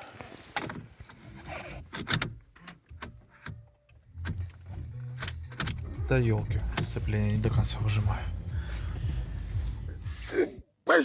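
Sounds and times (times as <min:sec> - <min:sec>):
gearshift clicks and clunks: 0:00.5 - 0:06.0
diesel engine droning: 0:04.4 - 0:10.5.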